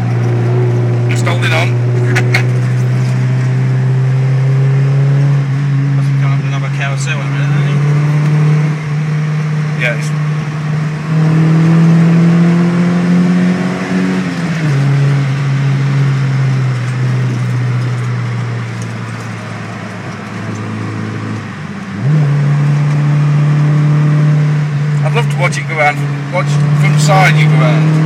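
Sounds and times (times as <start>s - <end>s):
car engine from inside cabin: 0.0s - 28.0s.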